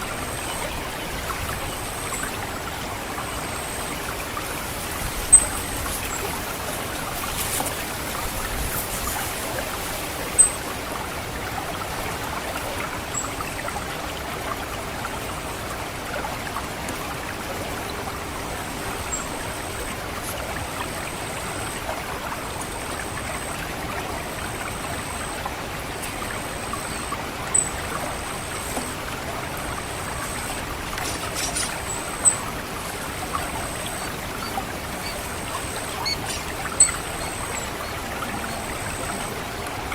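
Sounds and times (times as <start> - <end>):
water trickling and gurgling: 0.0 - 39.9
thin high bird call: 31.0 - 32.5, 33.6 - 39.3.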